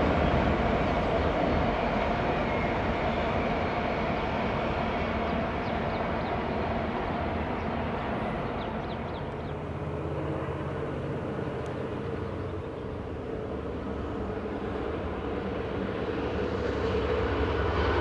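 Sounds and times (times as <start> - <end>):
distant diesel locomotive drone: 0.0 - 18.0
train wheels rumbling on rail: 0.0 - 18.0.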